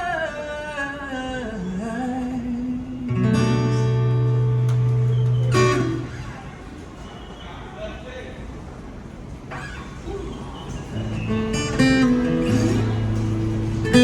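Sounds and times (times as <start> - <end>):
guitar playing: 3.1 - 6.4, 11.0 - 14.0.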